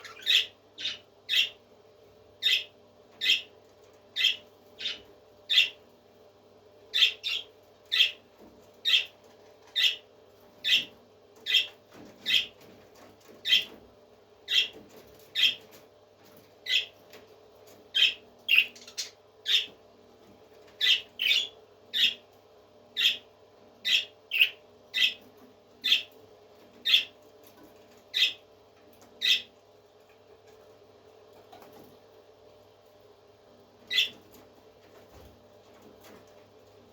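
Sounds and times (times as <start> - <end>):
parrot squawking: 0.0 - 1.6.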